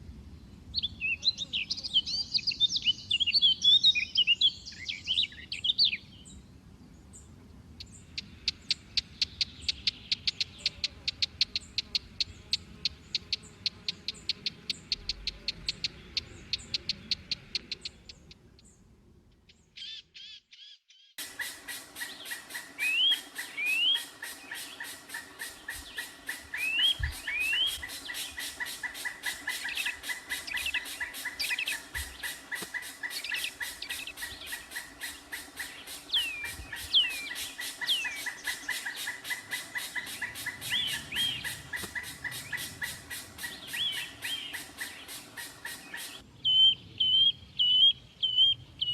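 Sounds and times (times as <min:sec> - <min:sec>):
chick chirping rapidly: 0:21.2 - 0:48.9.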